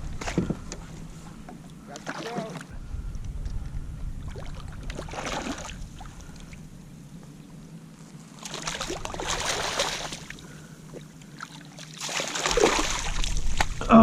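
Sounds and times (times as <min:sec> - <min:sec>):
water splashing and trickling: 0:01.9 - 0:02.7, 0:04.2 - 0:06.6, 0:08.4 - 0:13.9.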